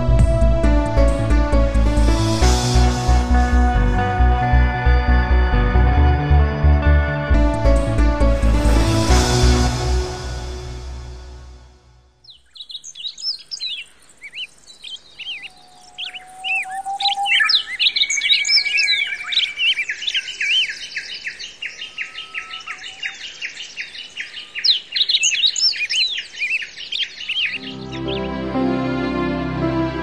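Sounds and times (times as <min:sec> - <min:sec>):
songbirds chirping and singing: 0:12.2 - 0:28.7.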